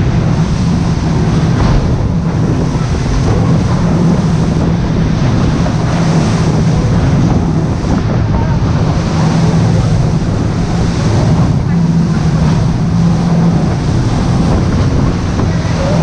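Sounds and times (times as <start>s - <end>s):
engine drone: 0.0s - 16.0s
rushing noise: 0.0s - 16.0s.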